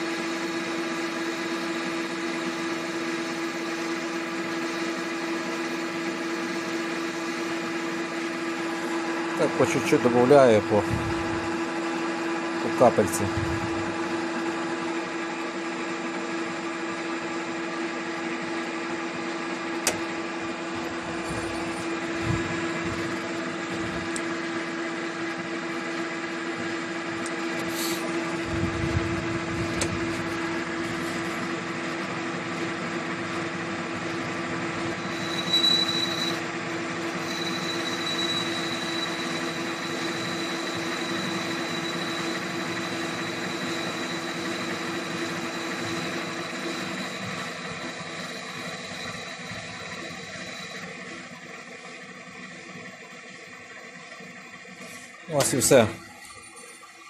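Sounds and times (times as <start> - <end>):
metal lathe humming: 0.0 - 57.0
thin high whistle: 35.0 - 36.5, 37.1 - 44.7.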